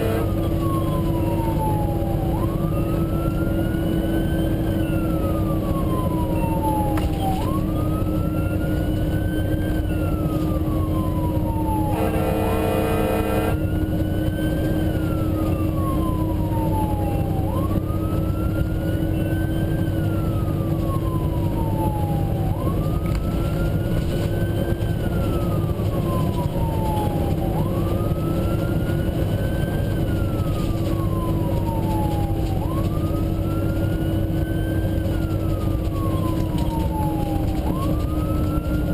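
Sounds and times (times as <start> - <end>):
horn blast: 0.0 - 0.4, 11.9 - 13.8
siren wailing: 0.0 - 38.9
truck engine drone: 0.0 - 38.9.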